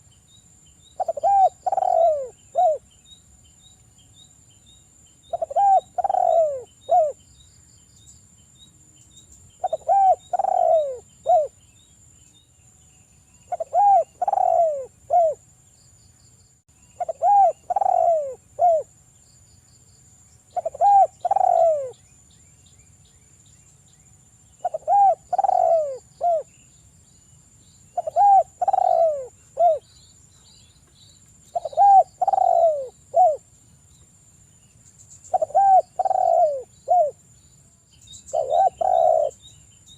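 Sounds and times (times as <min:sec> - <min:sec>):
dove cooing: 0:01.0 - 0:02.8, 0:05.3 - 0:07.2, 0:09.6 - 0:11.5, 0:13.5 - 0:15.4, 0:17.0 - 0:18.9, 0:20.5 - 0:22.0, 0:24.6 - 0:26.5, 0:28.0 - 0:29.9, 0:31.5 - 0:33.4, 0:35.3 - 0:37.2, 0:38.3 - 0:39.4.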